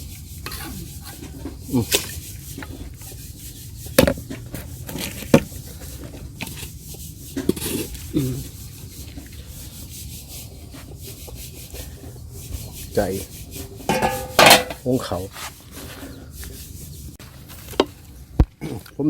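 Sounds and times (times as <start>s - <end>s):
utensil knocking on cookware: 13.9s - 14.8s.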